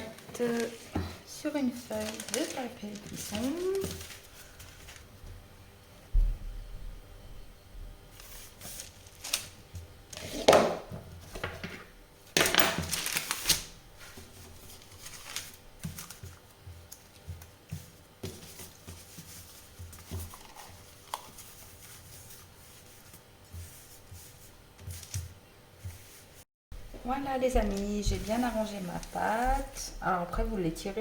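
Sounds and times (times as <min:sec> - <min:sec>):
baking paper rustling: 0:00.0 - 0:05.2, 0:08.1 - 0:31.0.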